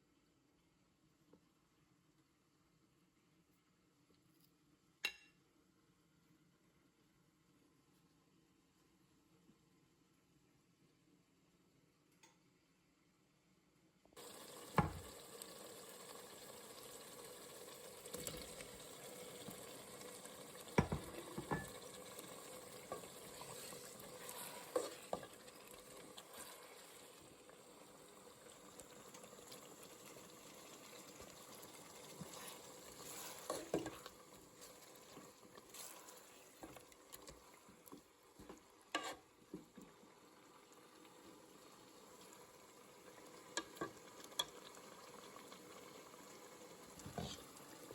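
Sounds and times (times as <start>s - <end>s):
curry sizzling in a pan: 14.2s - 47.9s
spoon knocking against pan: 14.8s - 15.0s, 20.8s - 21.8s.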